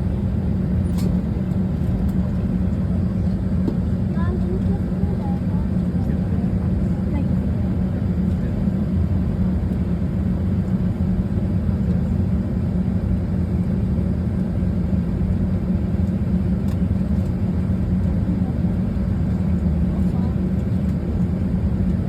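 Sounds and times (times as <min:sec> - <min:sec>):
aircraft cabin drone: 0:00.0 - 0:22.0.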